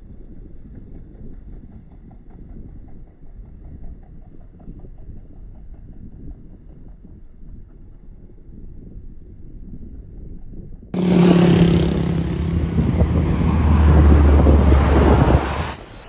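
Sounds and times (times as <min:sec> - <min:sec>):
wind rumble on microphone: 0:11.0 - 0:15.8.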